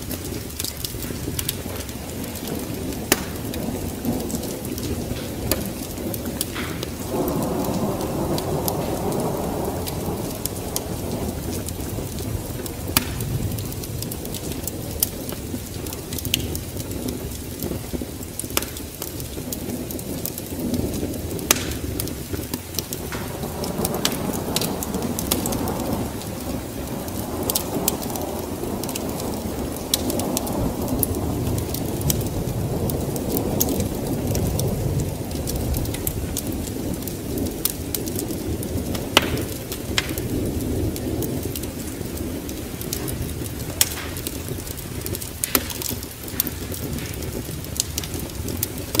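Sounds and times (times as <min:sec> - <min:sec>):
low rolling thunder: 0:00.0 - 0:49.0
sharp pops and ticks: 0:00.0 - 0:49.0
steady rain: 0:00.0 - 0:49.0.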